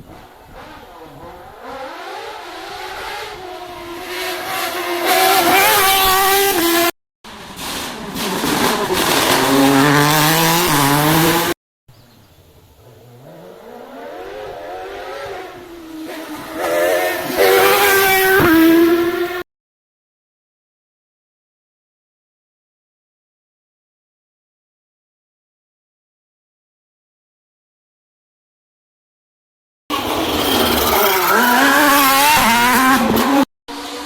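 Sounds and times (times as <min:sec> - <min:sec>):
rally car engines revving: 0:00.0 - 0:11.6, 0:12.7 - 0:19.4, 0:29.9 - 0:34.0.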